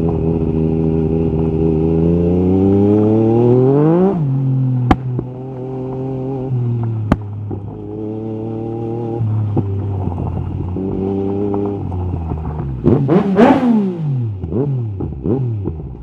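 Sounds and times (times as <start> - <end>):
motorcycle engine revving: 0.0 - 16.0
exhaust cracks: 4.8 - 16.0.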